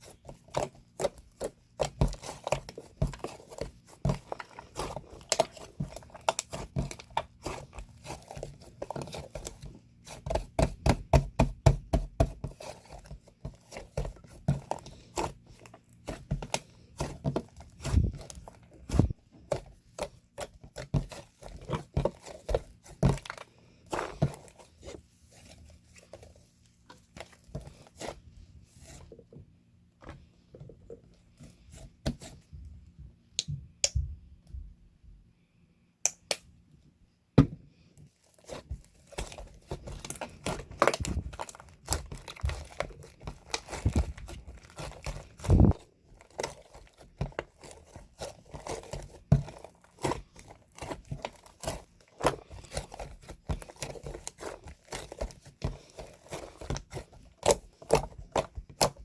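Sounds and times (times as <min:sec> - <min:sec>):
clicks and taps: 0:33.4 - 0:34.1
crinkling and tearing: 0:38.1 - 0:59.0.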